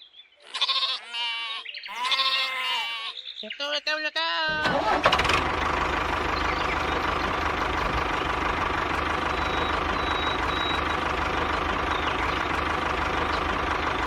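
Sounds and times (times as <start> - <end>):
small engine idling: 4.5 - 14.0.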